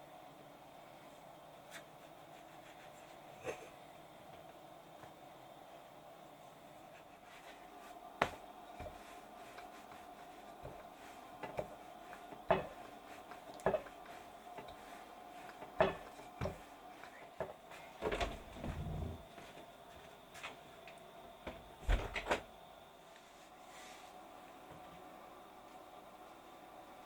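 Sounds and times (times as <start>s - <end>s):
faint steady hum: 0.0s - 27.0s
kitchen items knocking and clattering: 15.7s - 16.6s
dull low thump: 18.4s - 19.3s.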